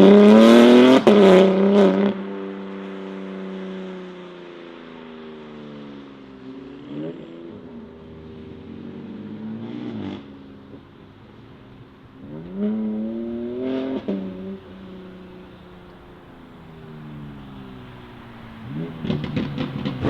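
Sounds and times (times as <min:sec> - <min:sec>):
sports car engine revving: 0:00.0 - 0:03.1, 0:12.2 - 0:20.0
exhaust pops: 0:15.4 - 0:20.0.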